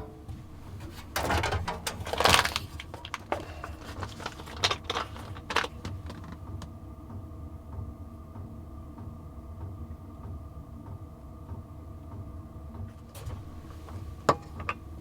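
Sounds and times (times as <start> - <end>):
low steady hum: 0.0 - 8.5
rustling: 0.3 - 6.6.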